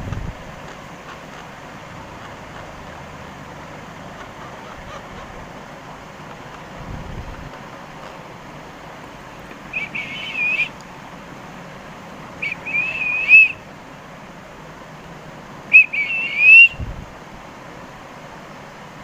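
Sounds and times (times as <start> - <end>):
parakeet whistling: 9.7 - 10.8, 12.4 - 13.6, 15.7 - 16.8.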